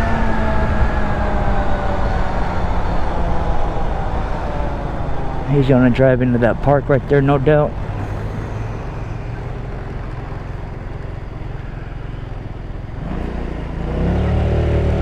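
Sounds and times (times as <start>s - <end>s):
road noise: 0.0s - 15.0s
scooter engine running: 7.3s - 13.0s.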